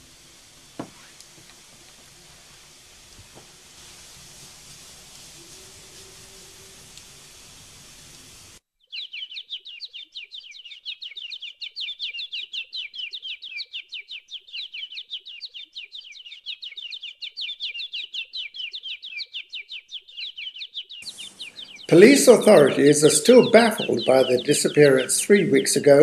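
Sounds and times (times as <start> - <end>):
steady hiss: 0.0 - 8.6, 21.0 - 26.0
bird chirping rapidly: 8.8 - 26.0.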